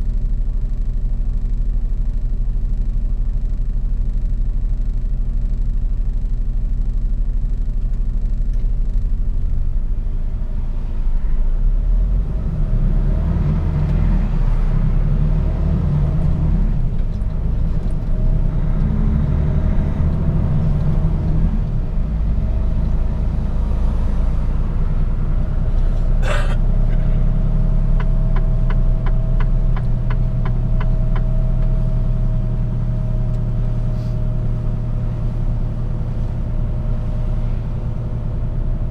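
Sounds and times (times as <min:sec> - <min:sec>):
diesel truck engine rumbling: 0:00.0 - 0:38.9.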